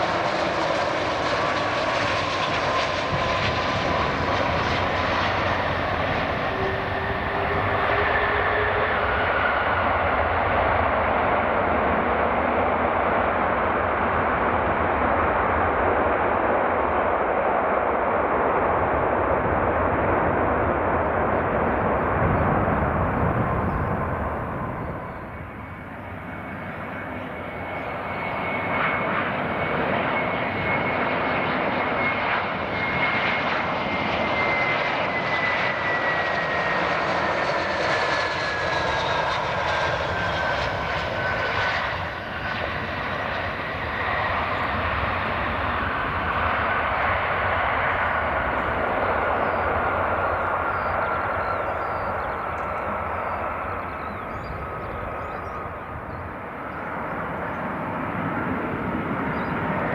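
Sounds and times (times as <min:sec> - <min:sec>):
jet engine noise: 0:00.0 - 0:59.9
high engine whine: 0:01.1 - 0:10.2, 0:21.3 - 0:33.1, 0:38.3 - 0:59.9.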